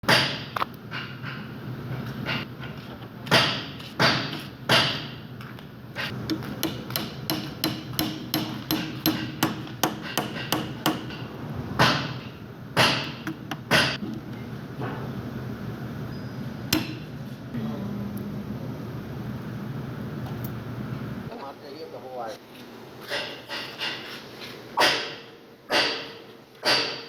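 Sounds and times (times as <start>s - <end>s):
hammer strikes: 0.0s - 1.5s, 2.2s - 5.2s, 6.1s - 14.0s, 16.7s - 17.1s, 24.8s - 27.0s.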